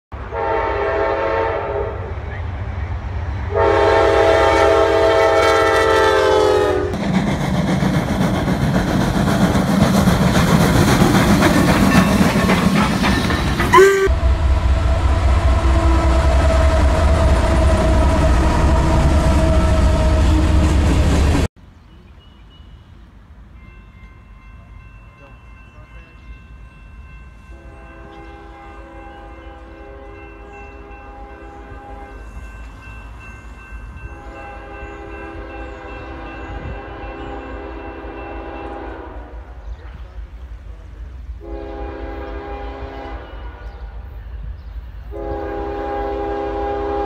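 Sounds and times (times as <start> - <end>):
freight train rumble and wheel clatter: 0.1 - 47.0
locomotive horn blasts: 0.2 - 2.2, 3.5 - 7.0, 13.7 - 20.8, 27.5 - 32.4, 34.1 - 39.5, 41.4 - 43.6, 45.1 - 47.0
locomotive engine drone: 6.8 - 21.5.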